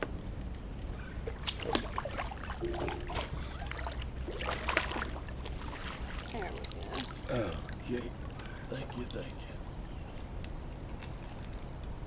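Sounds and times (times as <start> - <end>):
low steady rumble: 0.0 - 12.0
water splashing and dripping: 1.2 - 9.5.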